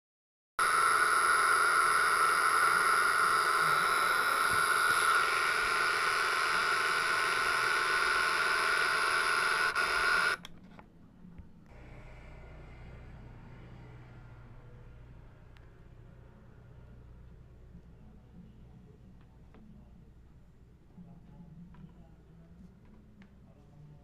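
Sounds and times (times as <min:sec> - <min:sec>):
faint hum: 0:00.6 - 0:24.0
tinny bus engine sound from speaker: 0:11.7 - 0:19.9.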